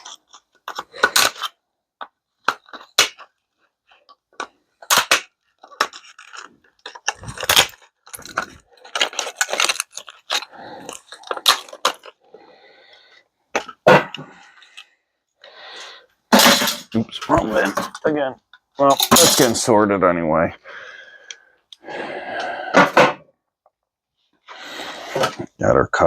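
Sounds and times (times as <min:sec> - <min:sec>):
scrap parts clattering into bins: 0:16.3 - 0:18.1, 0:18.9 - 0:19.8.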